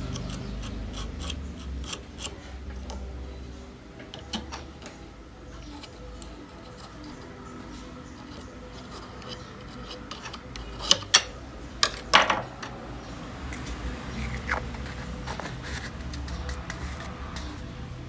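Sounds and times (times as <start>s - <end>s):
faint steady hum: 0.0s - 18.0s
hard objects clicking and knocking: 4.0s - 5.0s, 8.1s - 12.8s, 13.6s - 17.7s.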